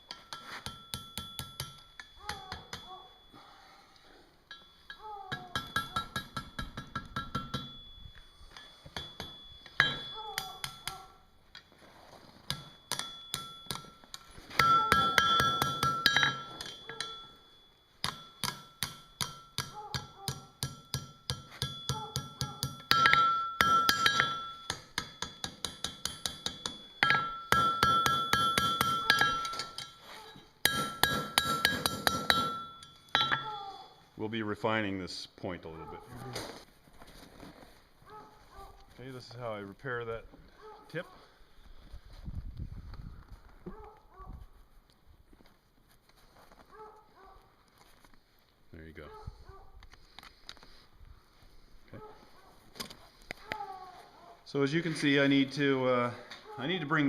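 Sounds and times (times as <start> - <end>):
hammer striking steel on anvil: 0.0 - 3.1, 4.5 - 7.9, 8.5 - 11.2, 12.5 - 17.4, 18.0 - 33.7
anvil ringing: 0.0 - 3.6, 4.4 - 11.2, 12.5 - 34.0.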